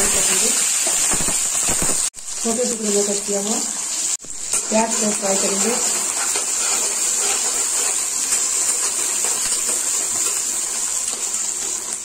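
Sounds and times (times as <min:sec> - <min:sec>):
onions sizzling in oil: 0:00.0 - 0:12.0
spatula scraping pan: 0:04.5 - 0:12.0.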